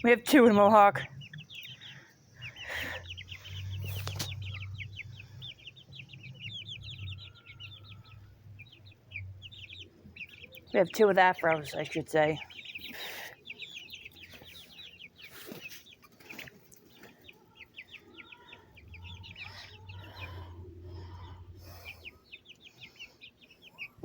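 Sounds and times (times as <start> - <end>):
young chickens peeping: 0.0 - 24.0.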